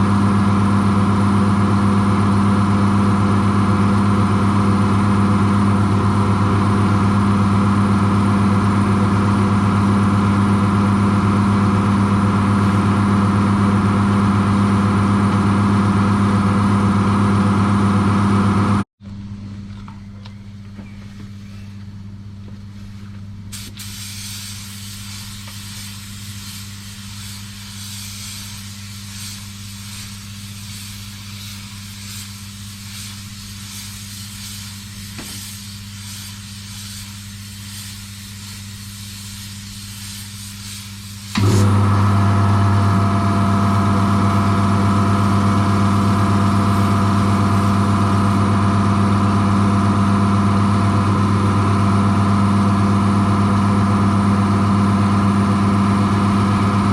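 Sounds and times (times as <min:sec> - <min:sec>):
loud mechanical hum: 0:00.0 - 0:56.9
quieter hum with hiss: 0:42.4 - 0:49.9.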